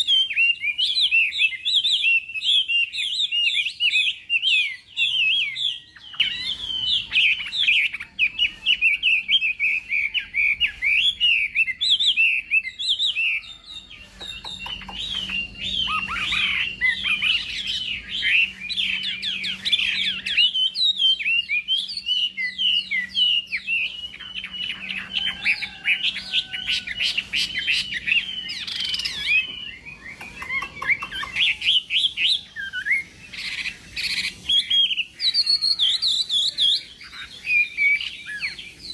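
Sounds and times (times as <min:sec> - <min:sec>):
bird singing whistled phrases: 0:00.0 - 0:38.9.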